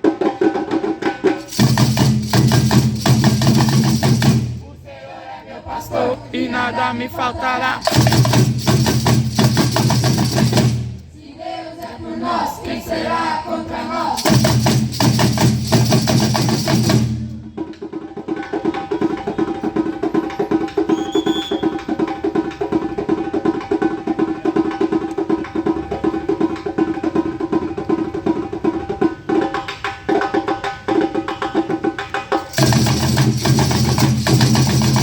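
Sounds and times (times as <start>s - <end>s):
bass-heavy music with percussion: 1.4s - 4.6s, 7.8s - 11.1s, 14.2s - 17.6s, 32.4s - 35.0s
quick tapping beat: 1.4s - 4.6s, 7.6s - 11.0s, 14.2s - 17.3s, 32.4s - 35.0s.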